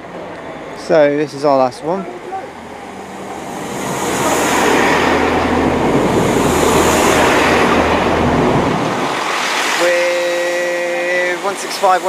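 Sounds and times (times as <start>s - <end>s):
diesel engine low hum: 0.0s - 9.4s
train wheels rushing on rail: 0.0s - 12.0s.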